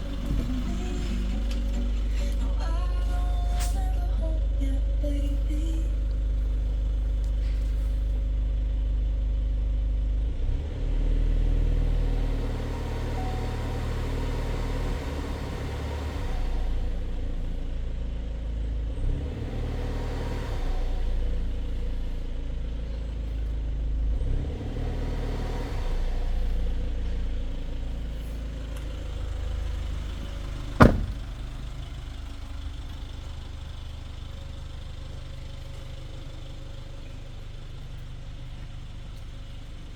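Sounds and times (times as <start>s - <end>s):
diesel engine revving: 0.0s - 8.2s, 10.2s - 39.9s
sharp knock: 30.8s - 31.3s.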